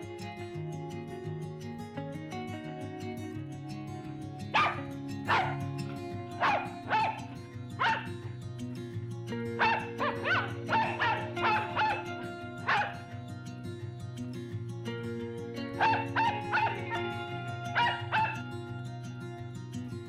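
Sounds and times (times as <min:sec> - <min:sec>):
soft background music: 0:00.0 - 0:20.0
animal barking and yelping: 0:04.5 - 0:08.3, 0:09.3 - 0:13.3, 0:15.8 - 0:18.6.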